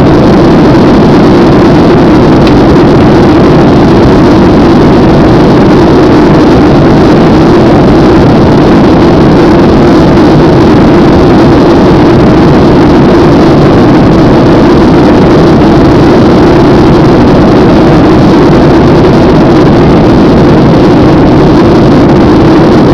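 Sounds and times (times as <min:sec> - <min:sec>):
jet engine and airflow noise: 0:00.0 - 0:22.9
low steady drone: 0:00.0 - 0:22.9.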